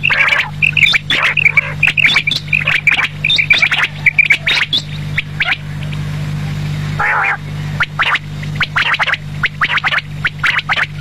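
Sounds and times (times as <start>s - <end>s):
quail calling: 0.0s - 6.1s, 7.0s - 11.0s
steady low hum: 0.0s - 11.0s.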